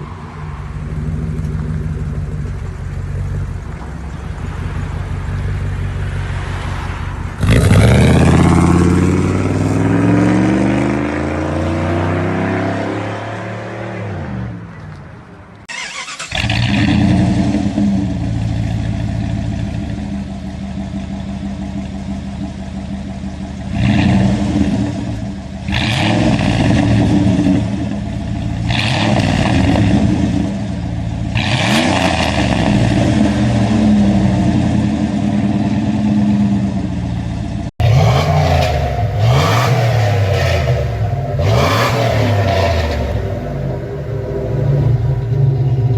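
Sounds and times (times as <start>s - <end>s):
engine idling and revving: 0.0s - 45.9s.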